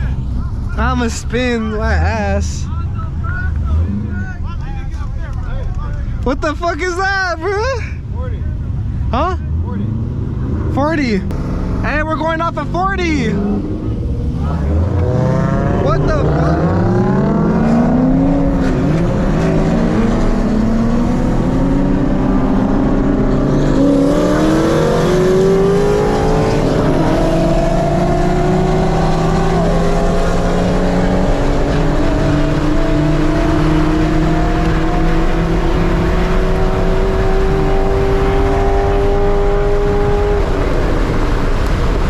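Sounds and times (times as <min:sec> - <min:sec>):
road and wind noise: 0:00.0 - 0:42.0
car engine accelerating hard: 0:09.2 - 0:42.0.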